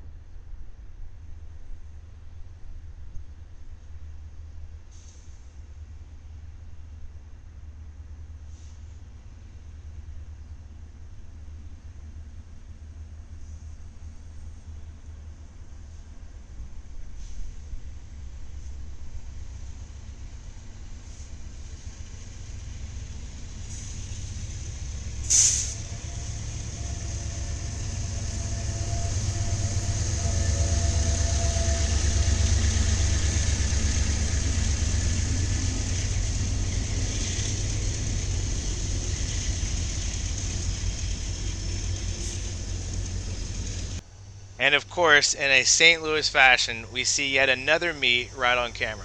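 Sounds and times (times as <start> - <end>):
freight train rumbling: 0.0 - 49.0
short sharp hiss: 4.9 - 5.6, 8.5 - 9.0, 25.2 - 25.8.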